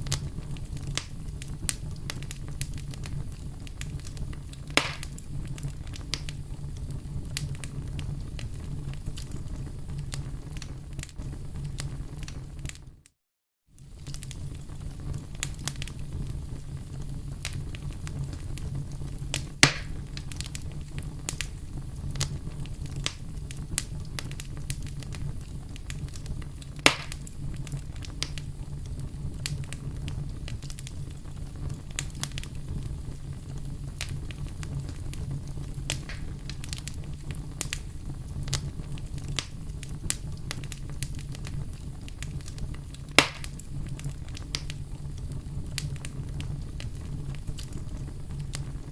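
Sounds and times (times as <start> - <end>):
wood fire crackling: 0.0 - 13.1, 13.8 - 48.9.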